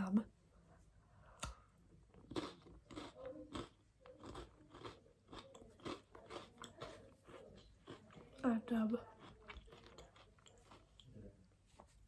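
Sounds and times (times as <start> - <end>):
person chewing crunchy food: 2.1 - 11.2.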